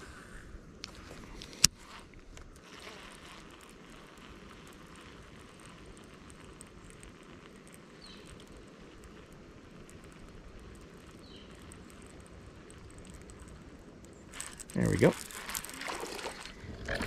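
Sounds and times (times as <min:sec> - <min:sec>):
wind noise: 0:14.3 - 0:17.0
water rushing: 0:14.6 - 0:17.0.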